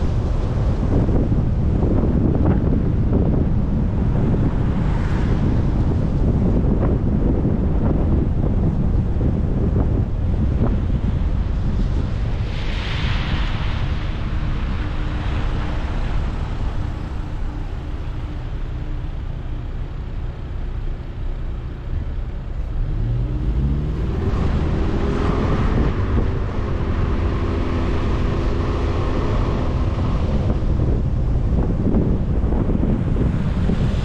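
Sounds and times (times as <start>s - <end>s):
road rumble from moving vehicle: 0.0s - 34.0s
engine speeding up: 22.6s - 34.0s.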